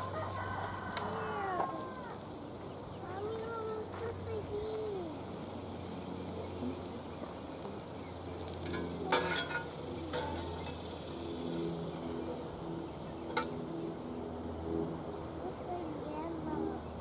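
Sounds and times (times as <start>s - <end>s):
sausage sizzling in a skillet: 4.3s - 12.2s
metal tongs clinking on pan: 8.6s - 10.8s.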